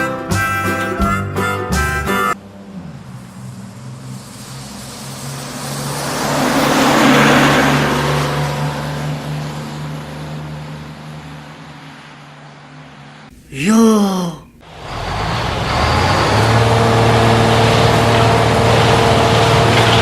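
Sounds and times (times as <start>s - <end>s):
vehicle passing by: 2.4s - 13.3s.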